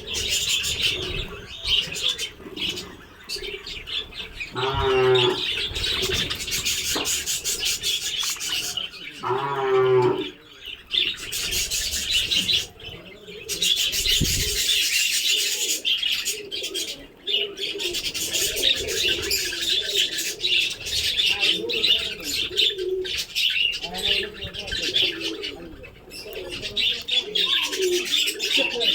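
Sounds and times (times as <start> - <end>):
drawn-out low bird call: 0.0 - 7.7
budgerigars chattering and chirping: 0.0 - 28.9.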